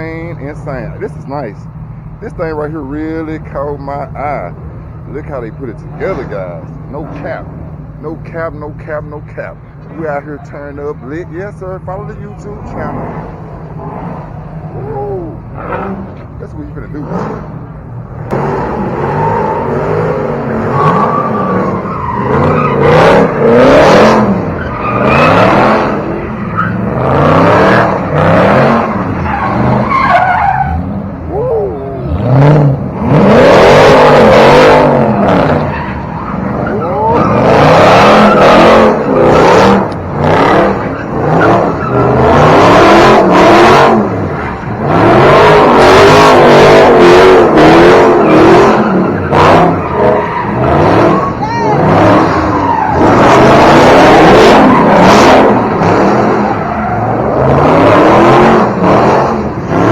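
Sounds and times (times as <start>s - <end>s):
car engines revving: 0.0s - 59.9s
tyres squealing: 19.0s - 59.9s.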